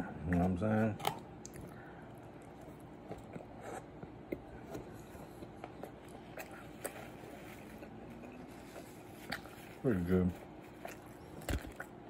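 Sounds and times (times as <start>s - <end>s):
person chewing food: 0.2s - 12.0s
small mouth clicks and smacks: 1.0s - 3.4s.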